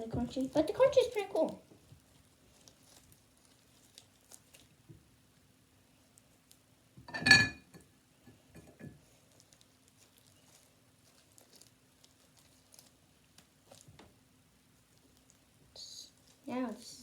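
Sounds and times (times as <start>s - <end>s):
utensil clinking against dish: 7.1s - 7.8s.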